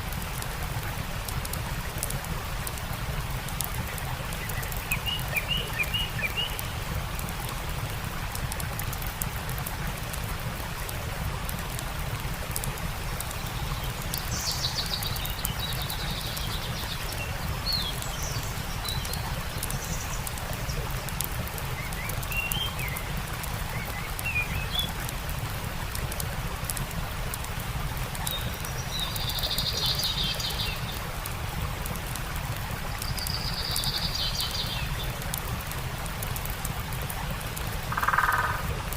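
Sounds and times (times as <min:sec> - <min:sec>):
stream water rushing: 0:00.0 - 0:38.9
small birds chirping: 0:03.8 - 0:06.9, 0:13.0 - 0:25.1, 0:28.0 - 0:31.1, 0:33.0 - 0:35.4.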